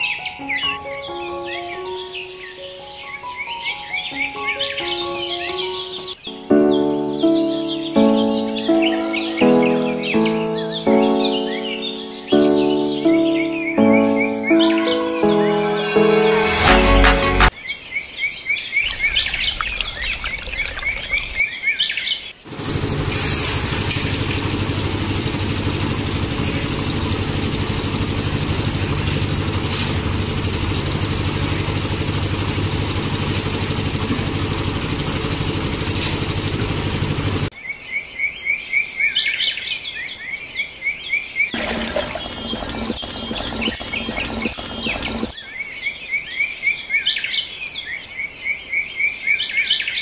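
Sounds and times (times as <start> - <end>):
high bird chirps: 18.8 - 22.4
machine running with low hum: 22.5 - 37.5, 41.6 - 45.3.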